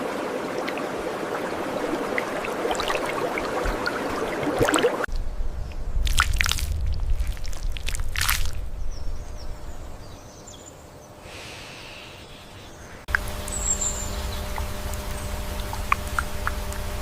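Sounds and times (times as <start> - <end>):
steady hum: 13.1 - 17.0
high bird whistle: 13.5 - 14.5.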